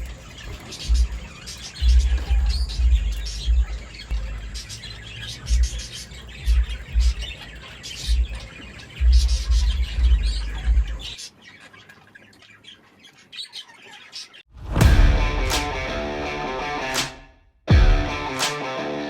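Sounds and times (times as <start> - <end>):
budgerigars chirping: 0.0 - 14.4
low rumbling thumps: 0.8 - 4.6, 5.5 - 7.4, 8.0 - 8.4, 9.0 - 11.1, 14.5 - 16.4, 17.7 - 18.3.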